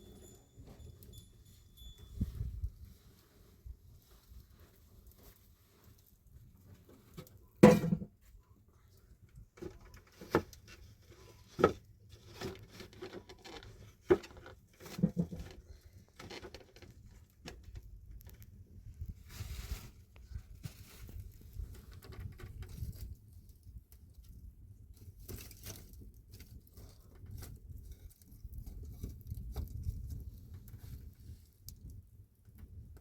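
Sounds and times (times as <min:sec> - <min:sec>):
rustling and handling noise: 0:00.0 - 0:23.6.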